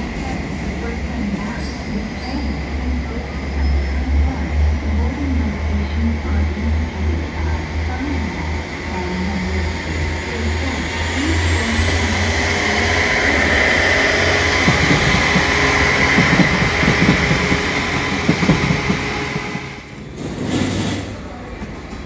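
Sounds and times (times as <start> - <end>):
train rumbling past: 0.0 - 22.0
train wheel knocks: 14.2 - 19.7.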